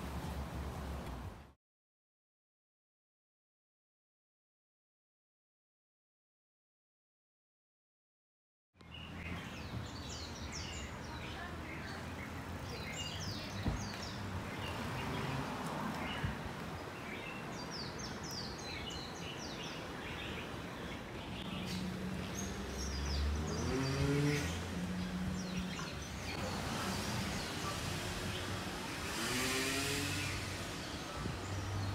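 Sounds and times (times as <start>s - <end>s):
outdoor background noise: 0.0s - 1.6s, 8.8s - 31.9s
small birds chirping: 8.8s - 31.9s.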